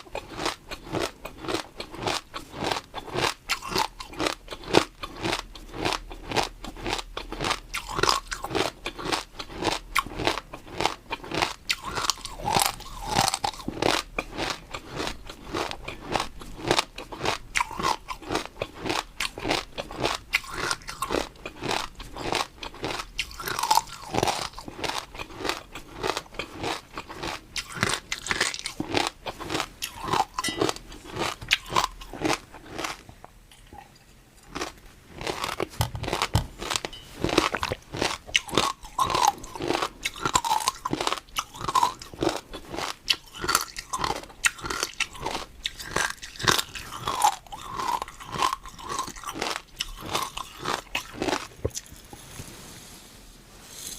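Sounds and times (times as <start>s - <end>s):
chewing crunchy food: 0.0s - 52.3s.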